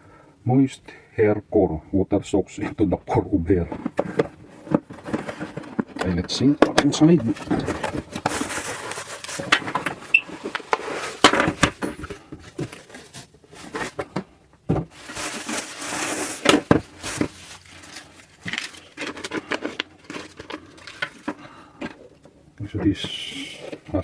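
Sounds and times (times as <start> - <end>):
wrapping rustling: 7.1 - 11.3, 14.9 - 21.6.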